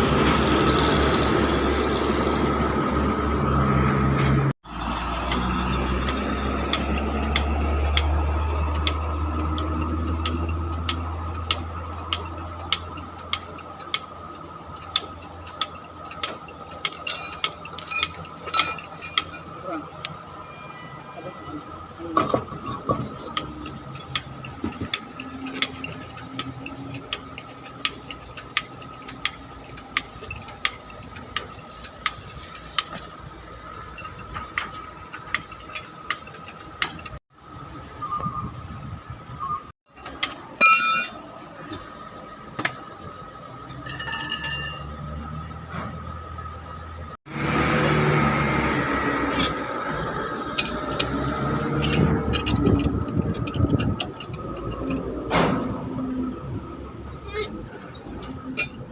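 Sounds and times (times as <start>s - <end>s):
engine hum: 0.0s - 58.9s
metal tools clinking and knocking: 6.1s - 20.1s, 22.1s - 37.2s, 39.9s - 41.8s, 43.6s - 45.0s, 50.4s - 55.6s, 57.3s - 58.9s.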